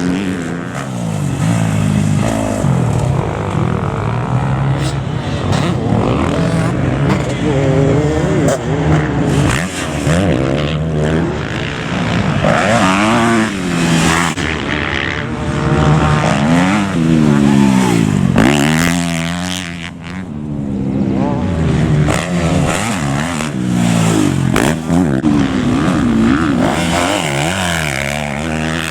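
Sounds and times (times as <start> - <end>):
motocross bike engines revving: 0.0 - 28.9.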